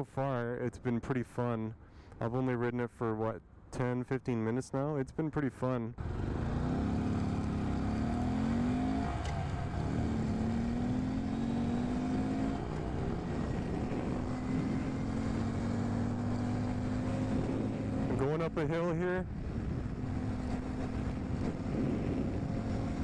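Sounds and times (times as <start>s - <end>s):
motorcycle engine running: 6.0s - 18.5s, 19.3s - 23.0s.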